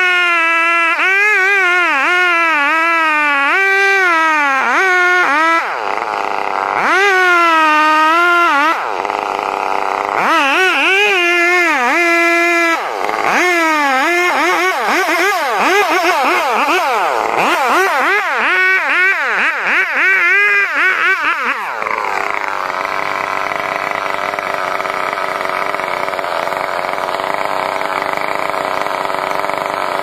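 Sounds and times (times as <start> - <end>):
chainsaw engine revving: 0.0 - 30.0.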